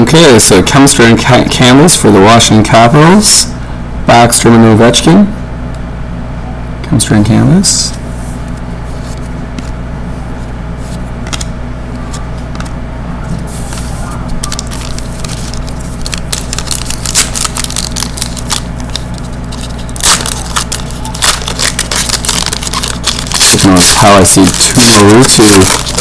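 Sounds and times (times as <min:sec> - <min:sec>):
steady low hum: 0:00.0 - 0:26.0
trading cards clicking and rustling: 0:10.8 - 0:26.0.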